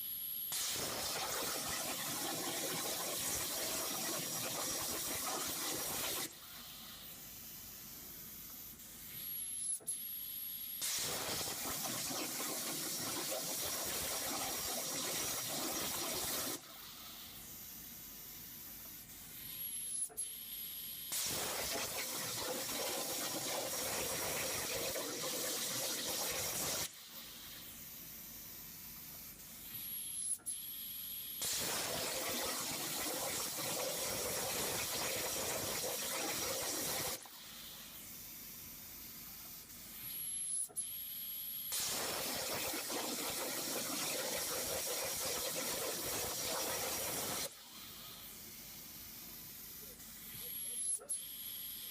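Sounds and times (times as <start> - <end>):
plasma torch hissing: 0.5 - 7.1, 10.8 - 16.6, 21.1 - 27.5, 31.4 - 38.0, 41.7 - 47.6.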